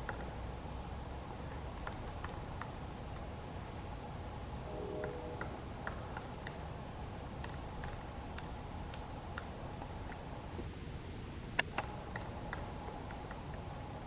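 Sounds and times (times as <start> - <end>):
steady low rumble: 4.4 - 7.7.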